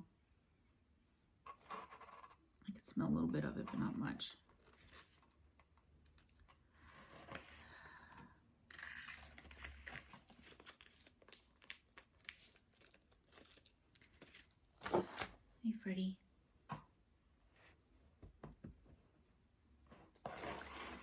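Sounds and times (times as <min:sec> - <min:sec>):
packaging rustling and tearing: 0:08.8 - 0:15.4.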